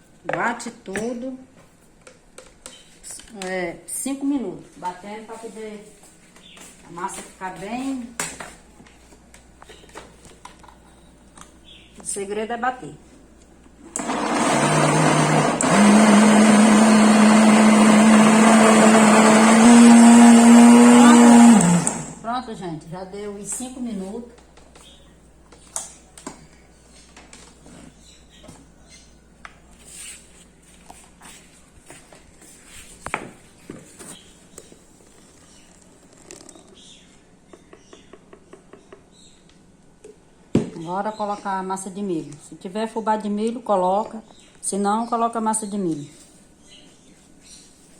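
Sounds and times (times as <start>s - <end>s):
blender motor running: 13.9s - 22.2s.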